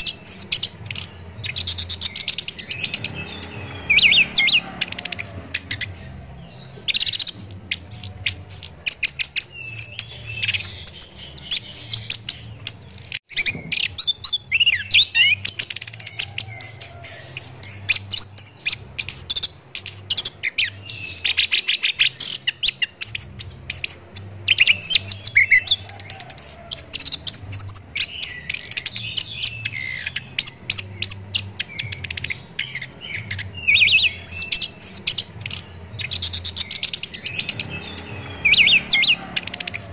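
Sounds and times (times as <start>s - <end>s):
thrush singing: 0.0s - 39.9s.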